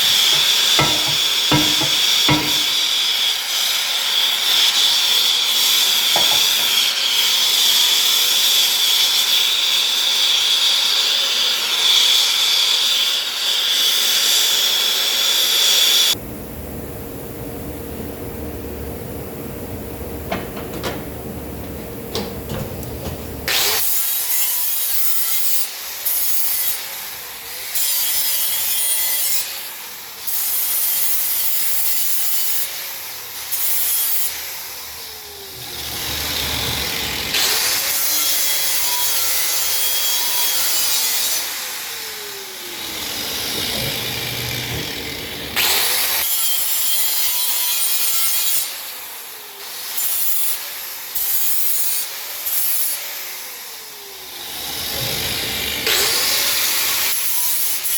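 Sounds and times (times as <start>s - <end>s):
rasping scraping strokes: 0.0s - 2.9s.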